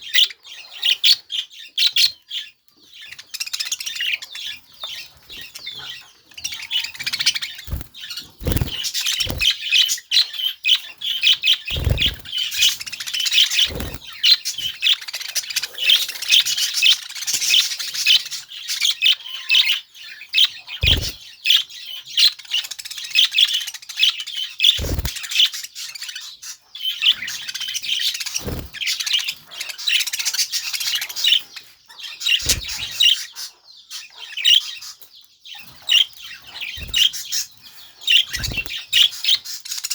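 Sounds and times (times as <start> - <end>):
budgerigar chattering and warbling: 20.4 - 21.2.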